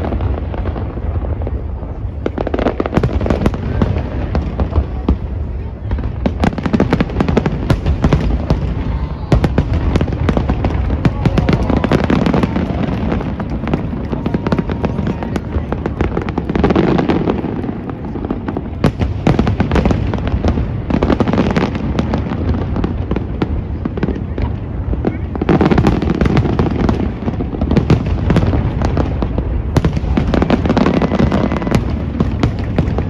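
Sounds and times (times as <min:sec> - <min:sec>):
fireworks cracks and bangs: 0:00.0 - 0:33.0.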